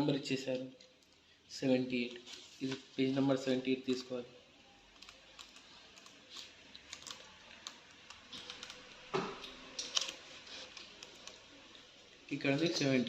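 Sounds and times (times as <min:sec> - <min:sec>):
paper pages turning: 0:05.2 - 0:09.0.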